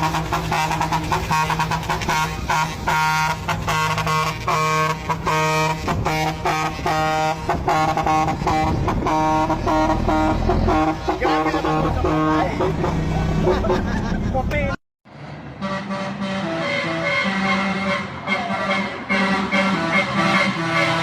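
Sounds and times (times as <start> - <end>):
musical air horn playing tune: 0.0 - 13.0, 15.6 - 21.0
truck engine humming: 0.0 - 21.0.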